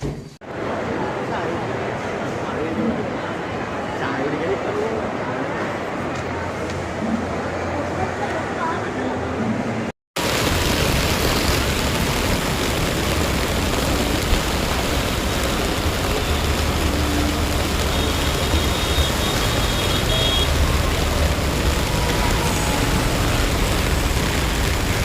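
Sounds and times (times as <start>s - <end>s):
heavy rain pouring: 10.2s - 25.0s.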